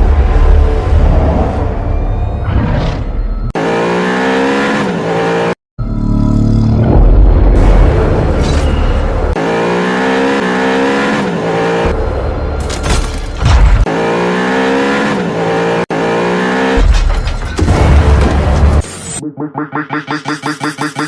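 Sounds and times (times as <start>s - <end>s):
car engine revving: 9.1s - 12.4s, 13.8s - 16.8s.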